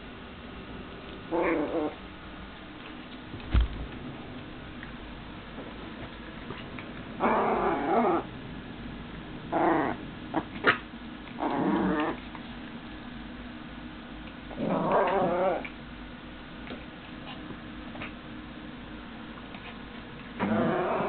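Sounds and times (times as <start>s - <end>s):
dogs growling: 1.3s - 2.0s, 7.1s - 8.3s, 9.5s - 12.2s, 14.5s - 15.7s, 20.4s - 21.0s.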